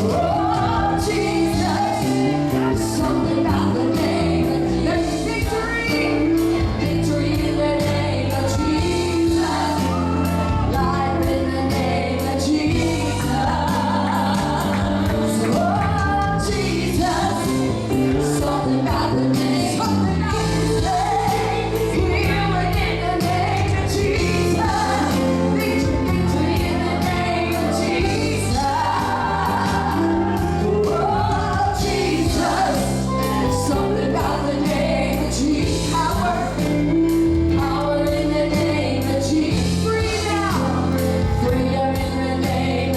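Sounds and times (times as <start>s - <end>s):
band playing: 0.0s - 42.9s
sustained bass notes: 0.0s - 42.9s
voices singing: 0.0s - 42.9s.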